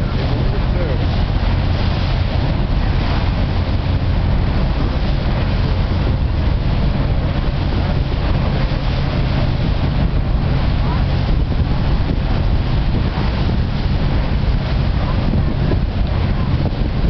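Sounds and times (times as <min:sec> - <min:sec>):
boat engine humming: 0:00.0 - 0:17.0
wind noise on microphone: 0:00.0 - 0:17.0.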